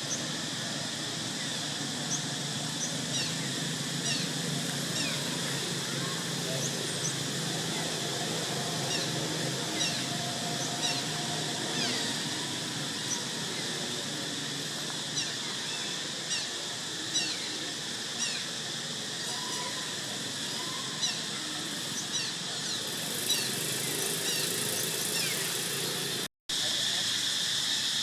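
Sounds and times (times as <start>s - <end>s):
steady outdoor hiss: 0.0s - 28.0s.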